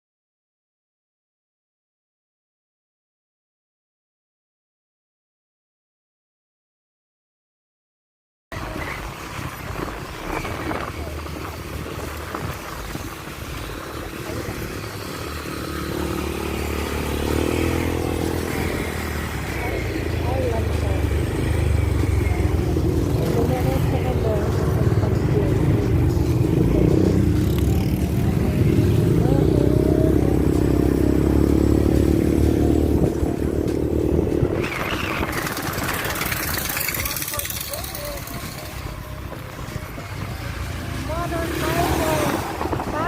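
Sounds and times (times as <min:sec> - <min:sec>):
motorcycle engine accelerating: 0:08.5 - 0:43.0
road and wind noise: 0:08.5 - 0:43.0.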